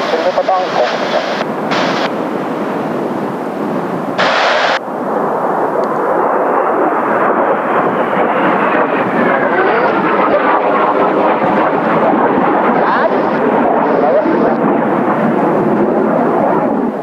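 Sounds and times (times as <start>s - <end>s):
jet planes passing overhead: 0.0s - 17.0s.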